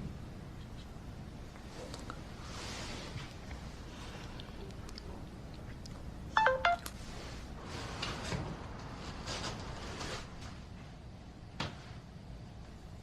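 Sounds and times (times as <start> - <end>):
phone electronic beeps: 6.4 - 6.9.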